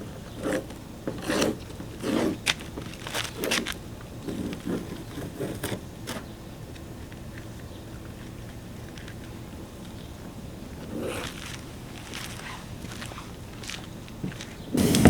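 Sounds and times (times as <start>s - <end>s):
crackling scrapes on headlight: 0.3s - 6.3s, 10.8s - 13.9s.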